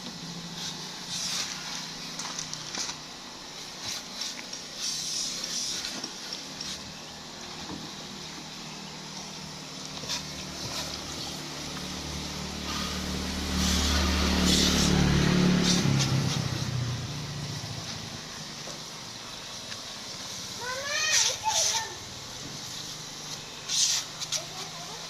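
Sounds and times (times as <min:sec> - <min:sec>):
vehicle engine passing by: 0:09.9 - 0:18.8.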